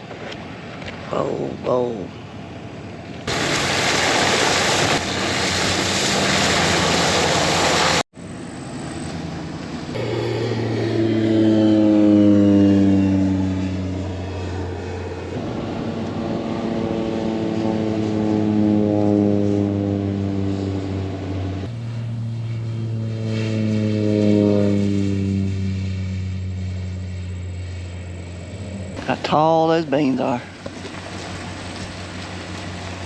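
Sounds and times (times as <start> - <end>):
propeller airplane engine drone: 0.0 - 33.0
loud rushing noise: 3.3 - 8.0, 9.9 - 13.9.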